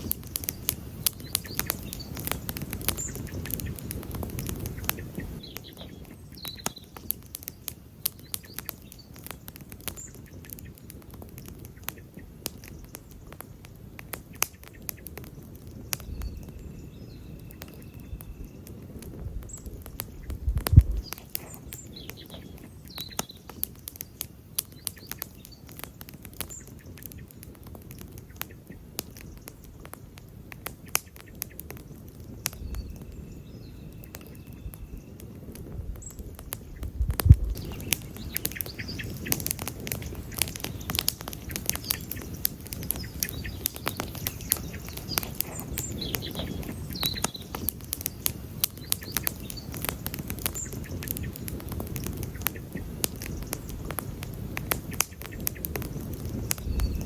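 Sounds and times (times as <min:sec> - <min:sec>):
campfire crackling and popping: 0:00.0 - 0:57.0
faint high chirps: 0:16.0 - 0:18.8.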